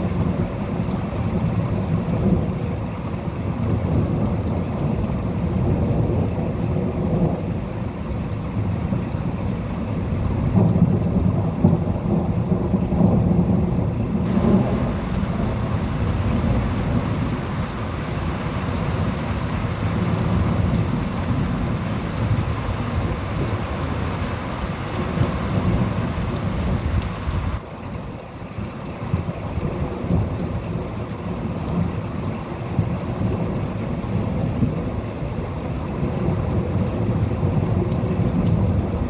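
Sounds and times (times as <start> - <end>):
steady rain: 0.0 - 39.0
low rolling thunder: 14.3 - 27.6.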